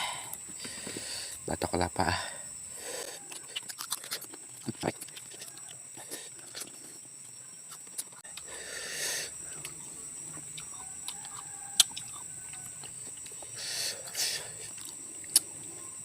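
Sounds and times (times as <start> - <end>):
chewing raw fruit: 2.7 - 16.0
sharp crunches: 3.0 - 7.0, 9.5 - 15.6.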